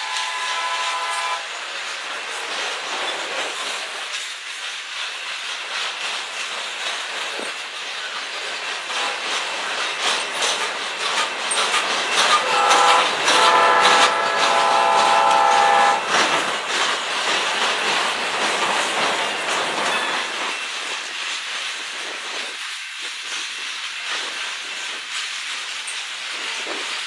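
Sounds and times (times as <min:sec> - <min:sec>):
multi-tone train horn: 0:00.0 - 0:01.5, 0:12.3 - 0:16.2
train wheels clattering on rails: 0:00.0 - 0:27.0.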